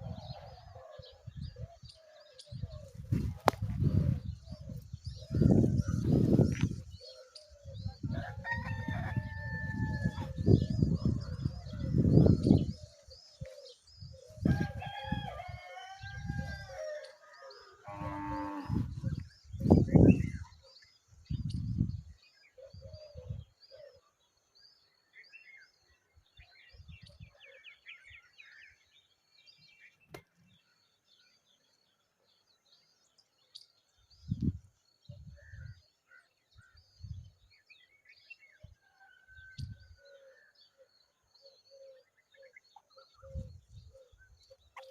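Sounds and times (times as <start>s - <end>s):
farmyard animal call: 17.6s - 18.9s
small birds chirping: 25.0s - 44.9s.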